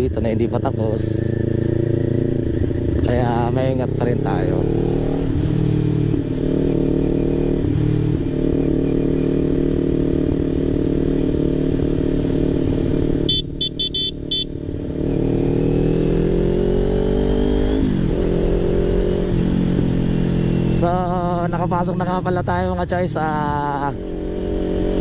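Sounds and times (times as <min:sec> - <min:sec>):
motorcycle engine running: 0:00.0 - 0:25.0
short high-pitched beeps: 0:13.2 - 0:14.6.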